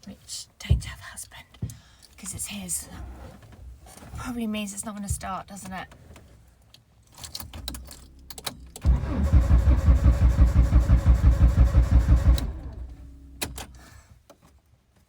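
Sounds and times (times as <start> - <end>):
starter motor cranking engine: 8.7 - 13.8.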